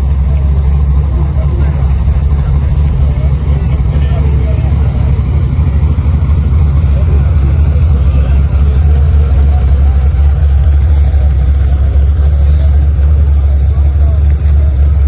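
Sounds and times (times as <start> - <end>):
car engine rumbling: 0.0 - 15.0.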